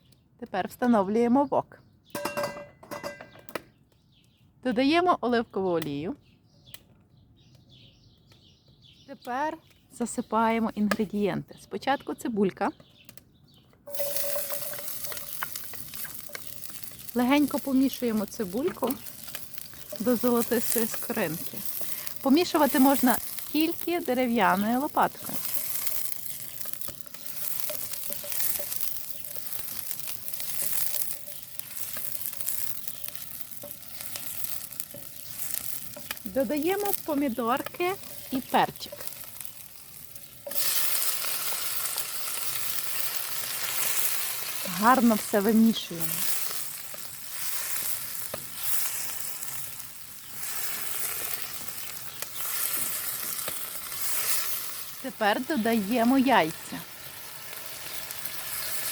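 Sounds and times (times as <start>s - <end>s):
onion sizzling in hot oil: 13.8s - 58.9s
wooden spatula stirring: 13.9s - 45.2s, 46.0s - 54.9s.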